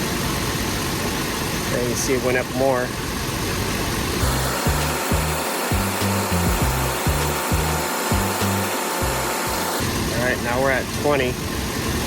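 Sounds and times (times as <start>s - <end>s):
music with bass line and beat: 4.2s - 9.8s.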